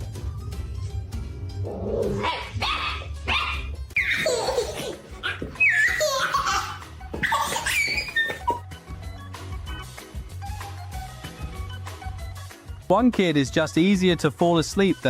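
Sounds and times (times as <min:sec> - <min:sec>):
background music with low beat: 0:00.0 - 0:15.0
baby laughing and squealing: 0:02.2 - 0:08.6.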